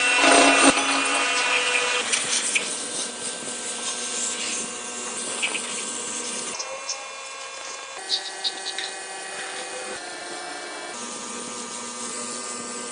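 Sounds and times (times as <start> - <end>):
power tool whirring: 0.0 - 12.9.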